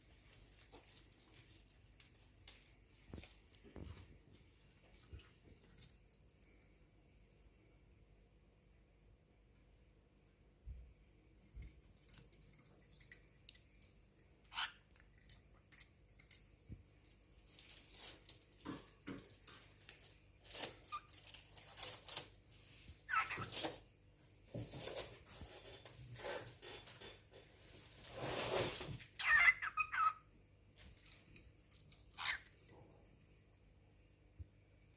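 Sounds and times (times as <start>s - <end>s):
scratchy rustling and tearing: 0.0s - 4.2s, 17.0s - 26.6s, 27.6s - 29.2s.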